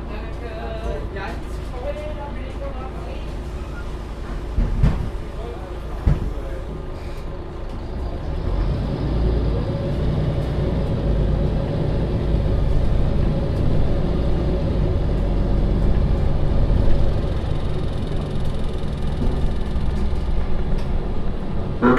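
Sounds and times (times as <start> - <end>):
bus diesel engine pulling away: 2.9 - 21.9.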